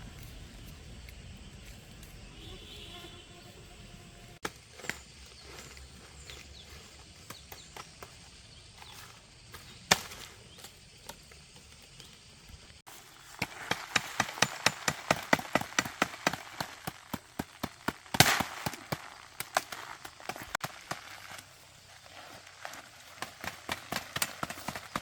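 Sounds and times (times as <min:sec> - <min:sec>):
loud crack: 0:13.4 - 0:21.4.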